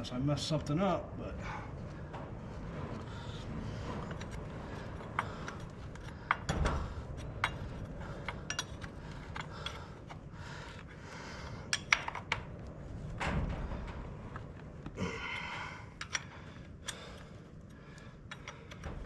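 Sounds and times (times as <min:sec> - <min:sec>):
metal tools clinking: 0:05.0 - 0:10.2.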